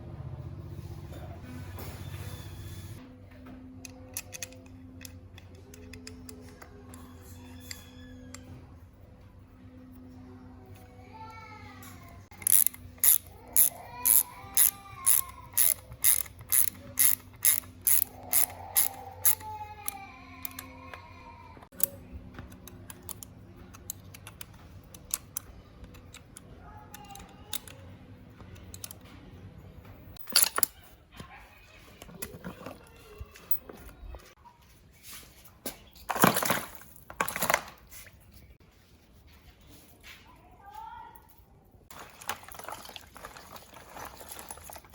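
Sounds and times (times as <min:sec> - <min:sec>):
ratchet wrench clicking: 0:12.3 - 0:20.7.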